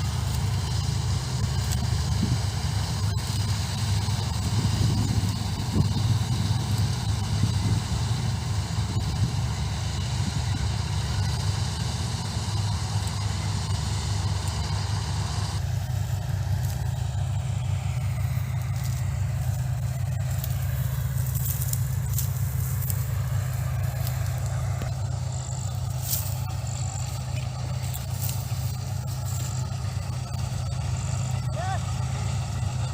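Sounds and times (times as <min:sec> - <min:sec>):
combine harvester engine drone: 0:00.0 - 0:32.9
high-pitched machinery noise: 0:00.0 - 0:32.9
faint crackles: 0:15.6 - 0:31.2.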